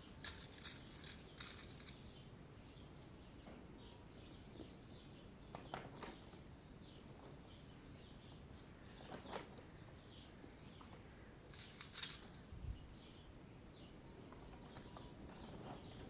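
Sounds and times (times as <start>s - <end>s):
faint birds chirping: 0.0s - 16.0s
rustling: 0.2s - 2.0s, 11.5s - 12.4s
sharp clicks: 0.2s - 2.0s, 11.5s - 12.4s.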